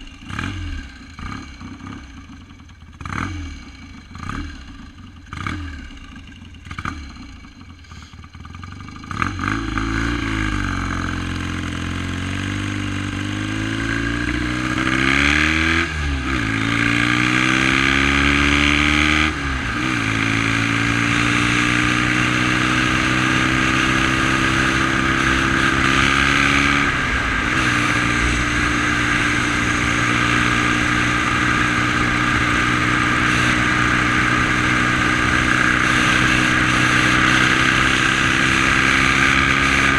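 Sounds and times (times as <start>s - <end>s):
motorcycle engine starting and revving: 0.0s - 39.9s.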